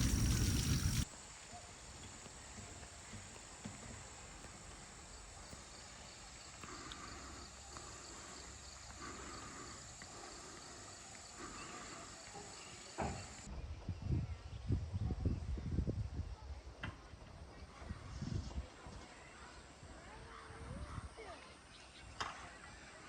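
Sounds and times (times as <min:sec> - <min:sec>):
low rumbling bumps: 0:00.0 - 0:01.0
insects chirring: 0:00.0 - 0:13.5.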